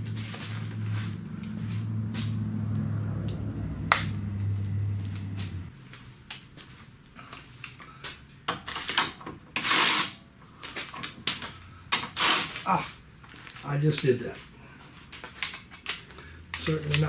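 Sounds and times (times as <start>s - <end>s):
steady low hum: 0.0s - 5.7s
tools clattering: 8.5s - 12.6s.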